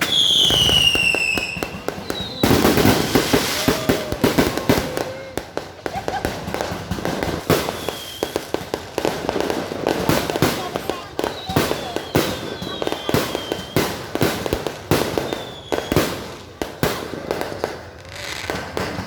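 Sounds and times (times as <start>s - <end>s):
firework whistle: 0.0s - 5.5s, 6.6s - 8.6s, 10.2s - 16.4s
fireworks bangs and crackling: 0.0s - 19.0s.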